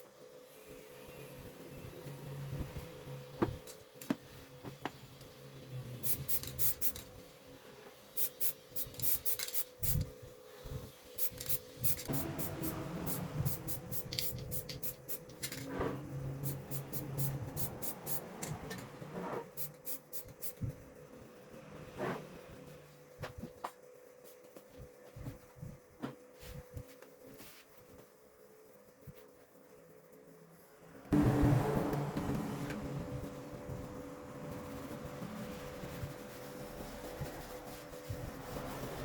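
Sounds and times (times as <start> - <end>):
hand scraping and rubbing: 34.6 - 39.0.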